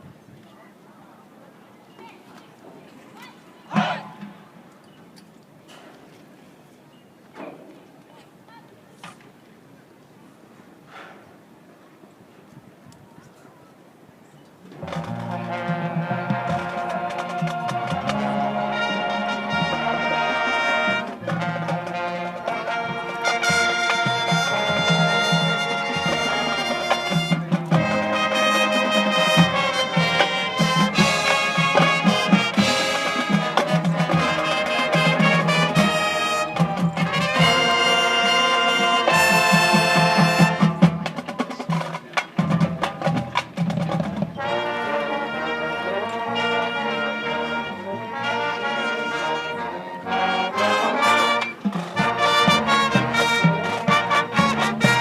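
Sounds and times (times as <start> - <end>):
drumline percussion: 2.8 - 4.6, 14.7 - 45.6, 50.3 - 55.0
brass playing sustained chords: 15.0 - 40.8, 44.4 - 55.0.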